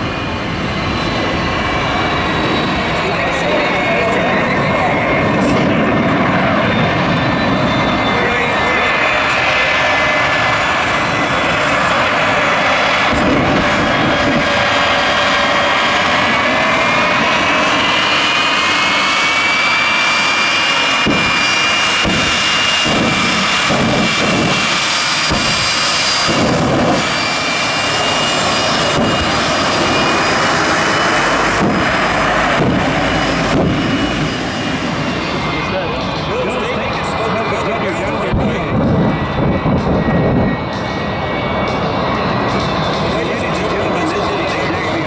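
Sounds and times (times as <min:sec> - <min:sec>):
jet engine whining: 0:00.0 - 0:45.0
dense rushing noise: 0:21.0 - 0:40.5
low thumps: 0:31.2 - 0:34.3.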